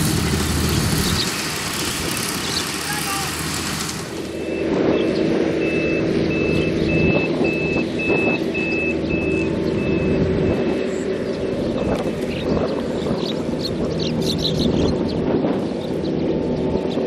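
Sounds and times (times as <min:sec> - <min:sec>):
loud engine rumble: 0:00.0 - 0:17.0
vehicle reversing alarm beeping: 0:04.2 - 0:12.7.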